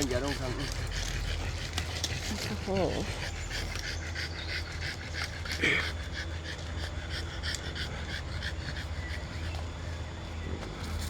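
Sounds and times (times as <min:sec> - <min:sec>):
dog panting: 0:00.0 - 0:11.0.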